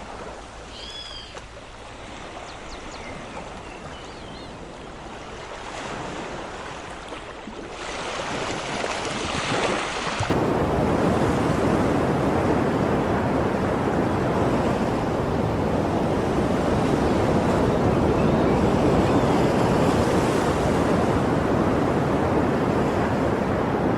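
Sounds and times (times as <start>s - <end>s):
ocean surf rushing: 7.8s - 23.9s.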